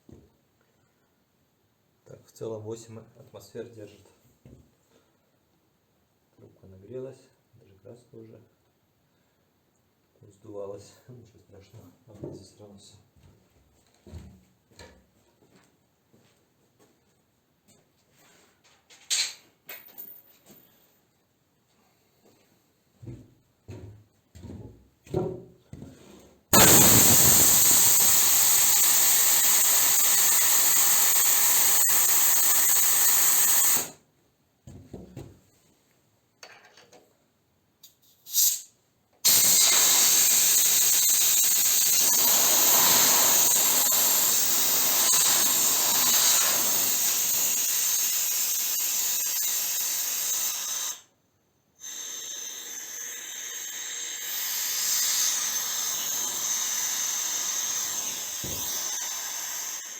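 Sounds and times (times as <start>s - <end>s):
compressed air hissing: 26.5s - 34.0s, 38.2s - 51.1s, 51.8s - 59.9s.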